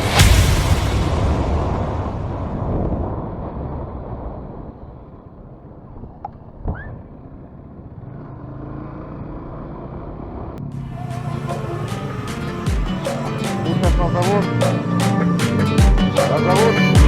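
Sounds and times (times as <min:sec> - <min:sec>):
motorcycle engine rumble: 0:02.6 - 0:16.2.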